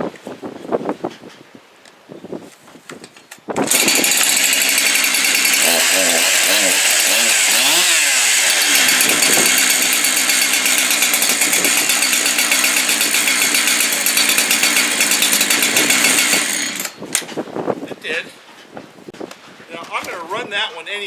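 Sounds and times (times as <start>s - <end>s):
chainsaw running and revving: 3.6s - 17.0s.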